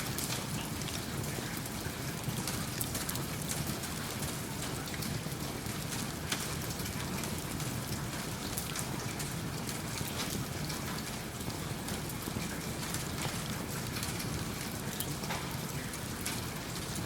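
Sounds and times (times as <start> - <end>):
steady rain hiss: 0.0 - 17.0
wood fire crackling: 11.9 - 15.4.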